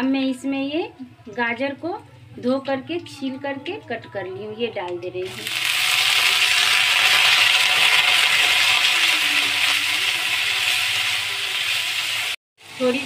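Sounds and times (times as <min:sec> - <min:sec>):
vegetables sizzling in hot oil: 0:05.2 - 0:13.0.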